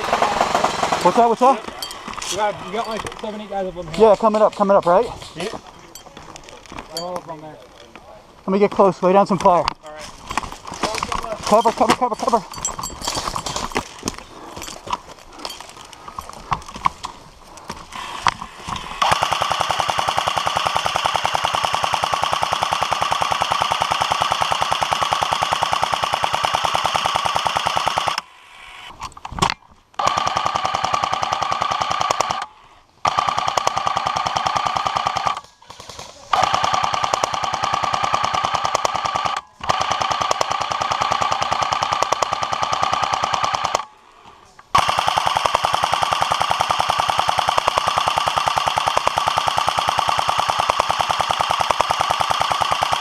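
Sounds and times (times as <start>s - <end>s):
airsoft gun firing full-auto: 19.0s - 28.2s, 30.0s - 32.4s, 33.0s - 43.9s, 44.8s - 53.0s.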